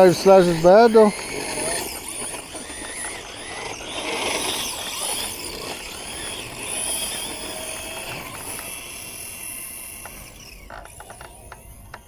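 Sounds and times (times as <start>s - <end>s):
toy truck electric motor whining: 0.0s - 12.0s.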